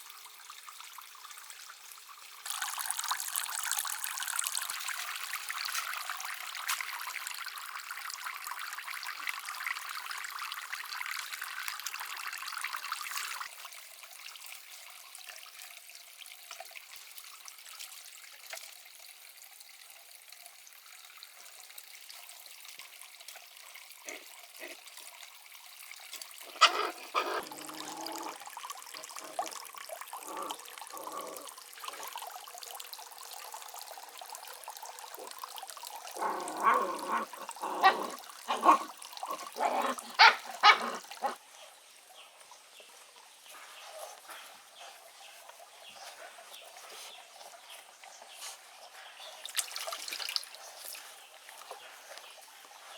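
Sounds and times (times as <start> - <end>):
water trickling and pouring: 0.0 - 52.9.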